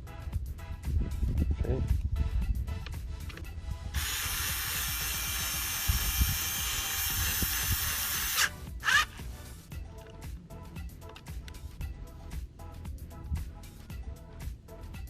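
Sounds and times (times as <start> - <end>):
power drill driving bolt: 4.0 - 9.2.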